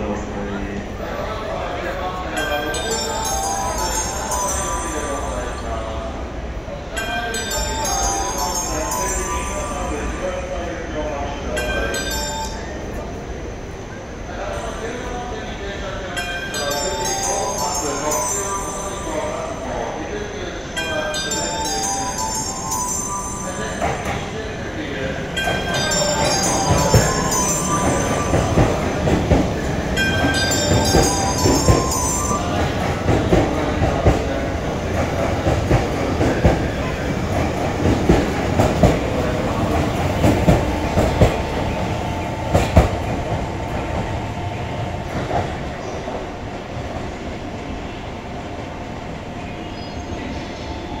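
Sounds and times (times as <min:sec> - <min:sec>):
pitched tones: 0:16.4 - 0:34.0.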